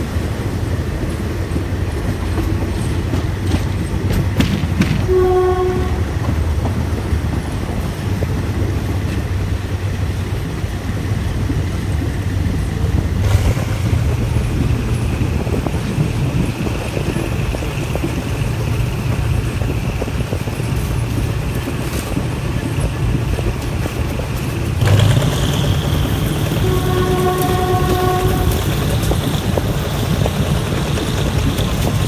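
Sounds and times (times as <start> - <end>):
train rumbling on rails: 0.0 - 32.0
train horn note: 4.9 - 6.5, 13.2 - 16.0, 24.8 - 31.9.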